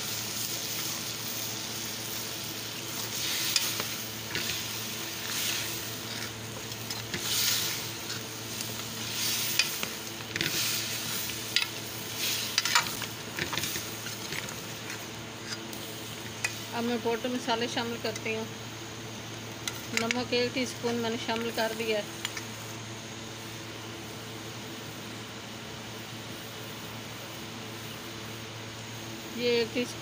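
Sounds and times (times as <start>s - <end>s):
chicken sizzling in oil: 0.0s - 22.8s
metal spoon scraping pan: 3.1s - 10.9s.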